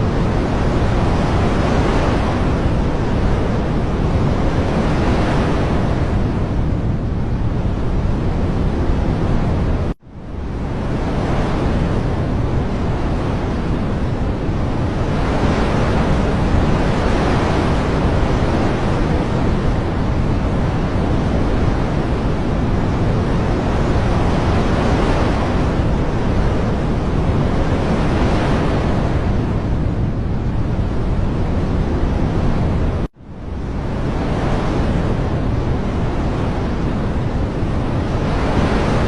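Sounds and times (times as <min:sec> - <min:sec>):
wind: 0:00.0 - 0:39.0
rushing water: 0:11.0 - 0:33.1.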